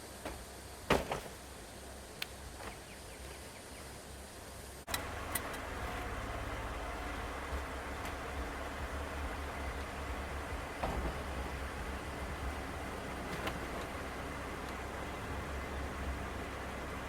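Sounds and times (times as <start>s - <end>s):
vehicle running low rumble: 1.5s - 17.0s.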